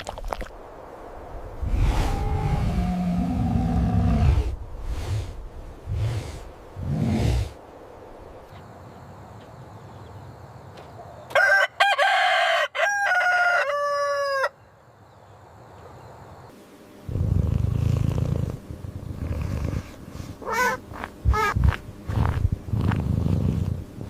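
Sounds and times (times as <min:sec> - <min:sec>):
low purring rumble: 0:01.6 - 0:07.6, 0:17.1 - 0:24.0
rooster crowing: 0:11.3 - 0:14.6.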